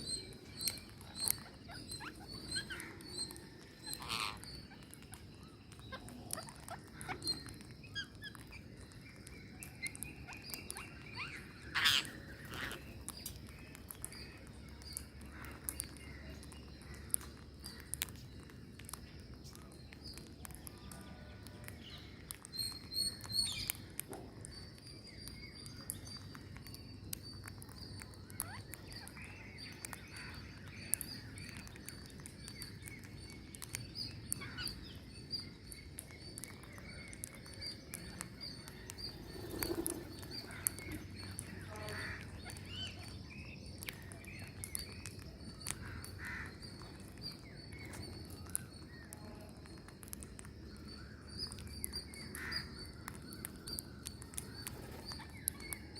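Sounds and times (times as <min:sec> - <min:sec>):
birds chirping rapidly: 0:00.0 - 0:19.7, 0:25.6 - 0:49.1.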